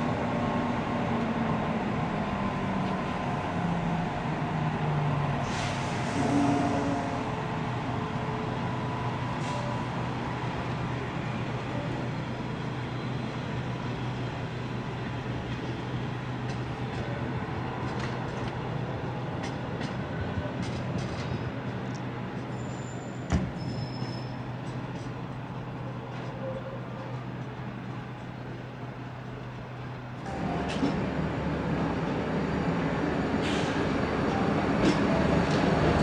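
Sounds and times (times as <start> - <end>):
train rumbling past: 0.0 - 36.0
high wheel squeals: 22.5 - 24.5.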